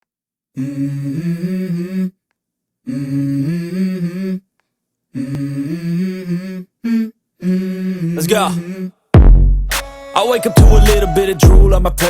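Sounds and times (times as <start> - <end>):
person humming a melody: 5.2 - 9.0, 10.4 - 12.0.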